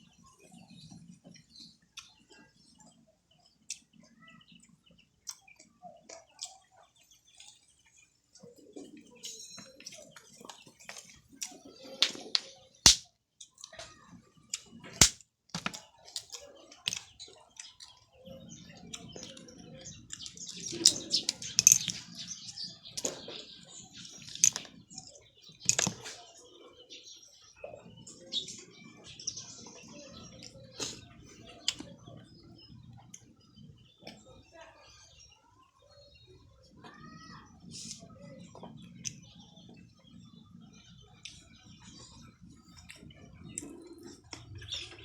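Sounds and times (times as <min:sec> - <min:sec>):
eating clicks and knocks: 0:12.0 - 0:13.8, 0:20.1 - 0:23.4, 0:25.6 - 0:26.2.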